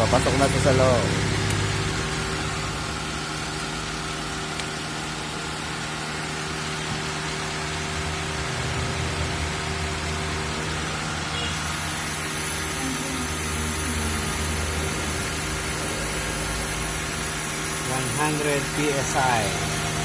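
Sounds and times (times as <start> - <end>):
air conditioning compressor hum: 0.0 - 20.0
car engine idling: 0.0 - 20.0
refrigerant hiss: 11.2 - 20.0.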